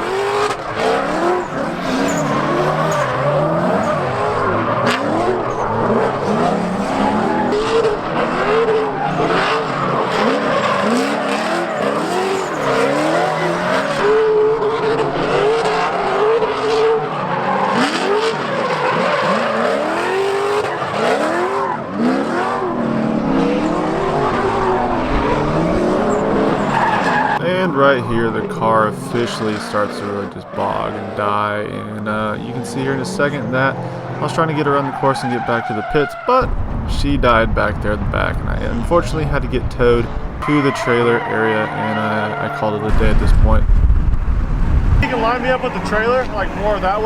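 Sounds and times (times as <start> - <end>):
tyres squealing: 0.0 - 14.2, 20.6 - 27.5, 32.8 - 38.0, 38.9 - 43.1, 45.0 - 47.0
car engine revving: 0.0 - 27.4, 28.1 - 47.0.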